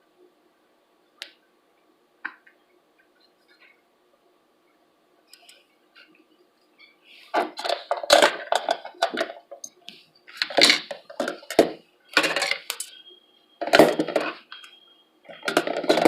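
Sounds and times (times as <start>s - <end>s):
plastic parts clacking: 7.3s - 9.7s, 10.3s - 13.0s, 13.6s - 16.0s.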